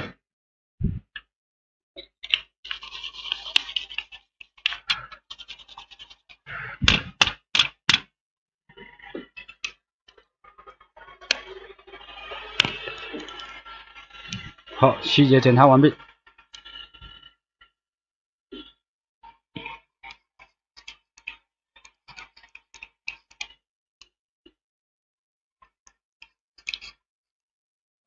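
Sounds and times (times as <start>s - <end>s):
scratching on workbench: 2.7s - 7.3s.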